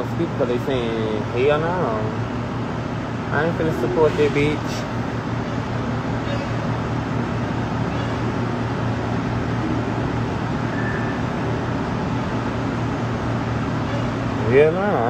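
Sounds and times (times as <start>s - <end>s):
background rumble with low hum: 0.0s - 15.0s
faint brief tone: 10.7s - 11.2s.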